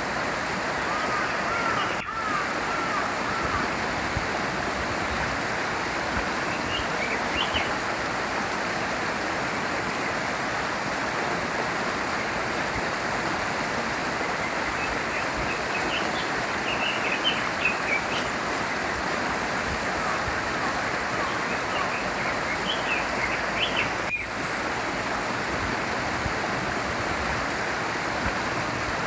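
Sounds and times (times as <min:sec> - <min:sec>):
small stream flowing: 0:00.0 - 0:29.0
small bird chirps: 0:14.8 - 0:18.3, 0:21.2 - 0:24.3.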